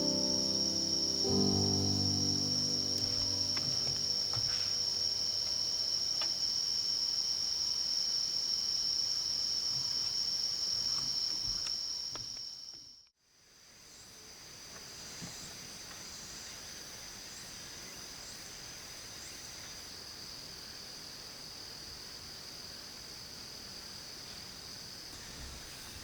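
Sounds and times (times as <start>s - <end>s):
faint piano music: 0.0s - 5.9s
insect chorus chirring: 0.0s - 13.0s.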